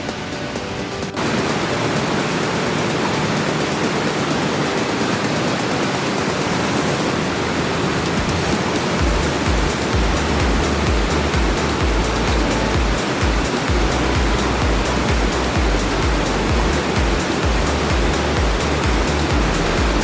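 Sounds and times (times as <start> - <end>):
waterfall rushing: 0.0 - 20.0
low uneven thumping: 9.0 - 20.0.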